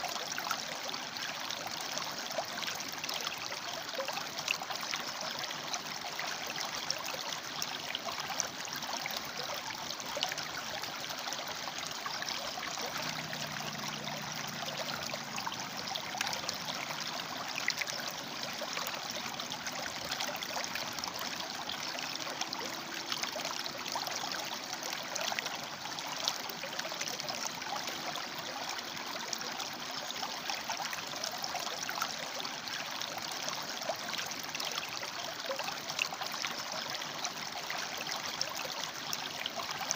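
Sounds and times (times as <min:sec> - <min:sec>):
small water splashes and trickles: 0:00.0 - 0:39.9
river rushing over rocks: 0:12.1 - 0:20.2.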